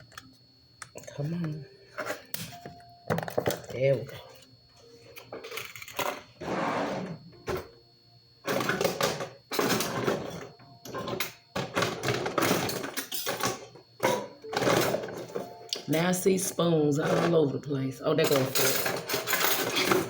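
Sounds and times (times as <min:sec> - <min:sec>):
kitchen utensils clattering: 0:08.5 - 0:16.0, 0:16.9 - 0:20.0.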